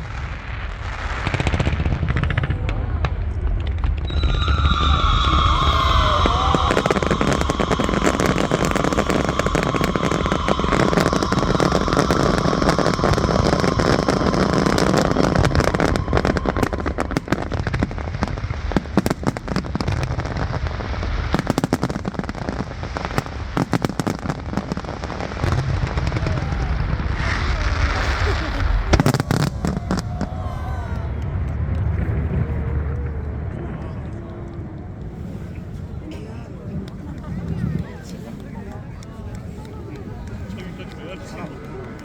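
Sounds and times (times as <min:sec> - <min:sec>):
fireworks crackling and banging: 0:00.0 - 0:42.0
high firework whistle: 0:03.9 - 0:20.6, 0:23.2 - 0:31.3.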